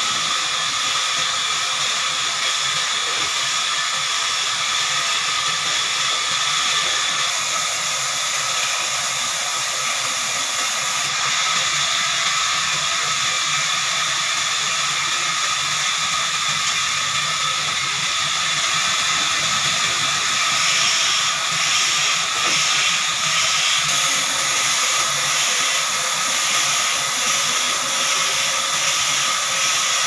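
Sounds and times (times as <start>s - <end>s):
band sawmill hissing: 0.0s - 30.0s
sawmill whining tones: 0.0s - 30.0s.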